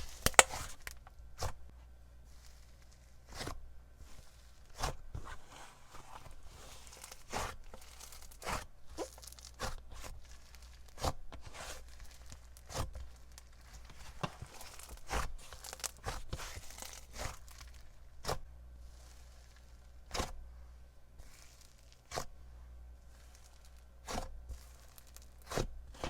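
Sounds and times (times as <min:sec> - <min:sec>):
slime squishing with sticky pops: 0:00.0 - 0:01.6, 0:06.6 - 0:20.4.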